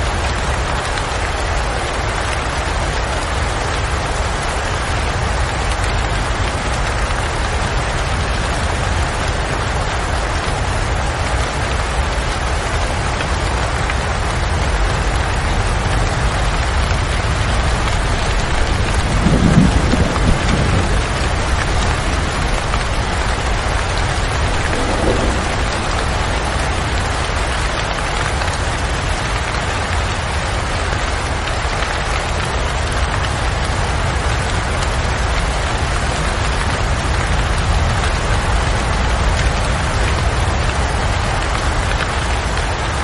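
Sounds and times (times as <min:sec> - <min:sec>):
heavy rain falling: 0:00.0 - 0:43.0
low rumble: 0:16.9 - 0:28.3.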